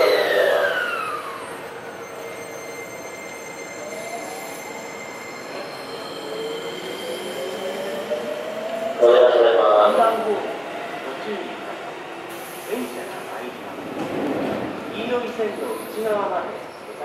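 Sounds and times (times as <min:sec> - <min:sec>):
electric train motor whine: 0:00.0 - 0:01.6
train wheels rolling: 0:12.2 - 0:16.1.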